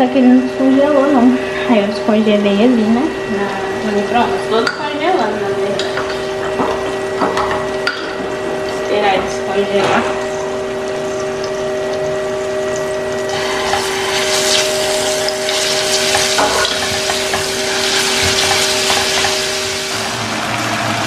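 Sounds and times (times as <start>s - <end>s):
steady hum: 0.0s - 21.0s
paste sizzling in hot oil: 5.8s - 21.0s.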